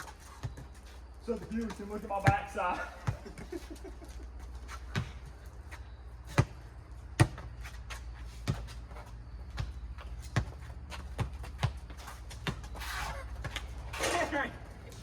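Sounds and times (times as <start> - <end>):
rubber ball bouncing on pavement: 6.3 - 13.9.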